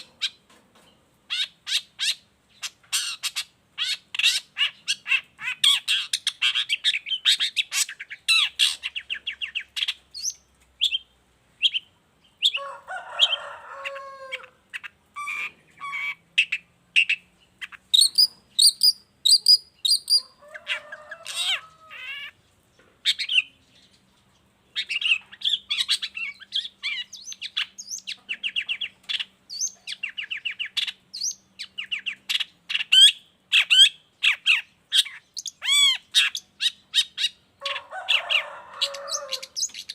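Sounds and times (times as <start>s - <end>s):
bird singing chirps and trills: 0.0s - 12.6s, 14.8s - 20.4s, 23.0s - 37.8s, 38.8s - 39.9s.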